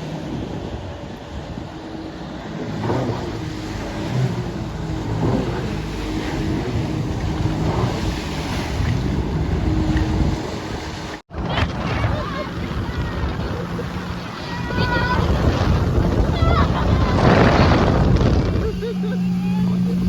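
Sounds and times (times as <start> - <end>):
wind on microphone: 0.0 - 19.1
low boat engine hum: 0.0 - 20.0
water rushing: 0.0 - 20.0.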